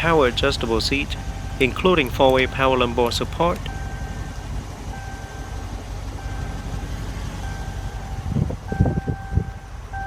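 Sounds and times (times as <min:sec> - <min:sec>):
constant low rumble: 0:00.0 - 0:10.0
car warning chime: 0:00.6 - 0:05.6, 0:07.4 - 0:10.0
dull low thumps: 0:03.6 - 0:10.0.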